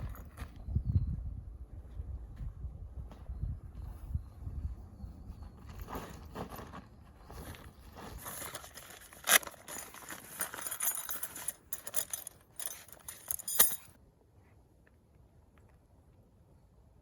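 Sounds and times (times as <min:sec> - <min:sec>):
rustling handling noise: 0:05.6 - 0:14.0
metallic clinks and jingling: 0:08.0 - 0:14.0.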